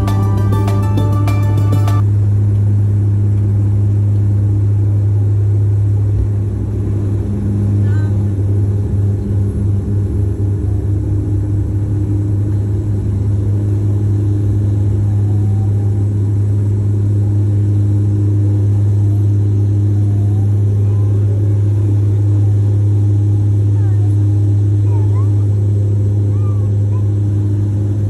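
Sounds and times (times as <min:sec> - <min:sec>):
low motor drone: 0:00.0 - 0:28.0.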